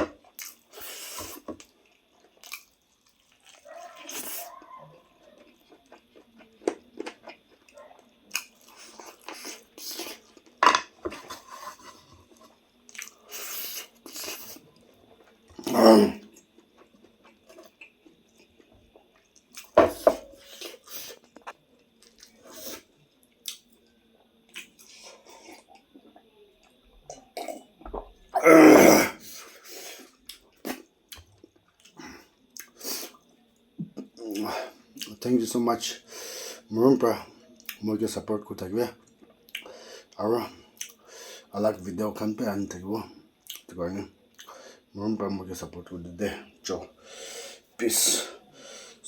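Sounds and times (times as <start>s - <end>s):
wet chewing and crunching: 0.2s - 22.7s, 23.3s - 23.7s
loud noisy mouthful: 15.6s - 16.2s, 28.4s - 29.2s.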